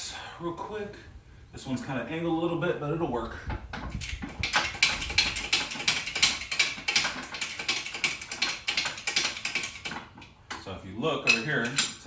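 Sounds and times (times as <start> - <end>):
metallic clicking and rattling tools: 3.5 - 12.0.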